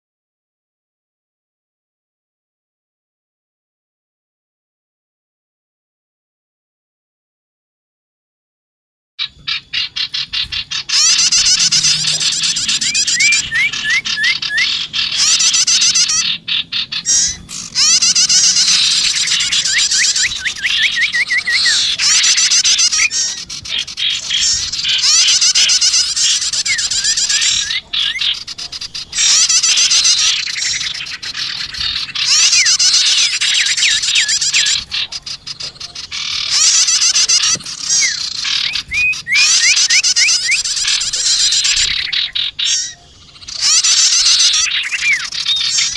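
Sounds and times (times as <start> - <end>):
songbird chattering trills: 9.2 - 45.9.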